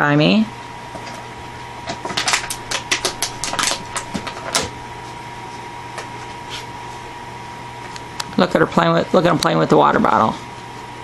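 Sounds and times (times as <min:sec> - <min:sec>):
plastic bottle crackling: 0:01.9 - 0:04.8.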